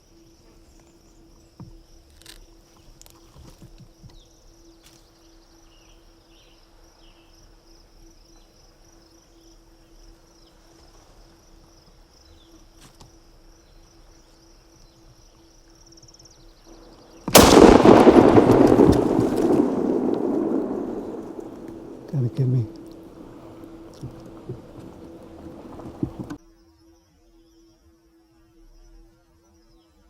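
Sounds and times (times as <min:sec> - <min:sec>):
faint chirps: 0:16.7 - 0:26.4
shotgun blast: 0:17.3 - 0:26.4.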